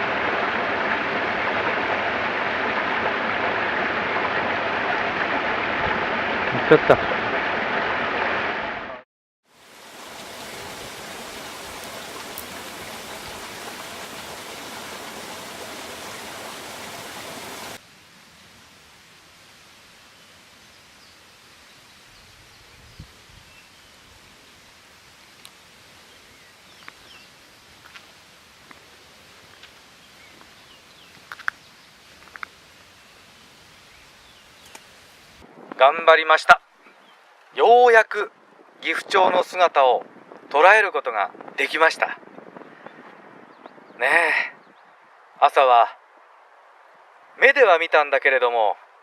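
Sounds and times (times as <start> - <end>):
stream water rushing: 0.0 - 8.9, 9.5 - 17.8
quiet outdoor background: 8.7 - 49.0.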